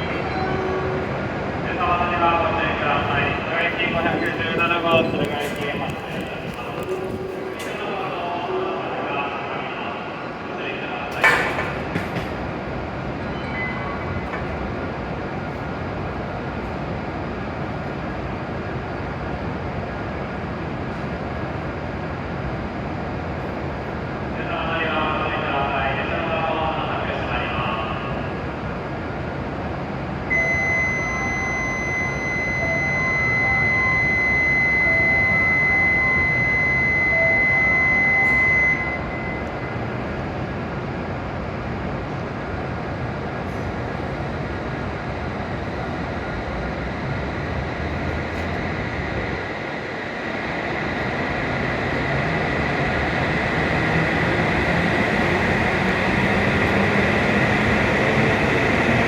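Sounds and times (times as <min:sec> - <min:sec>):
train machinery hum: 0:00.0 - 0:59.0
high-pitched electronic signal tone: 0:30.3 - 0:39.7.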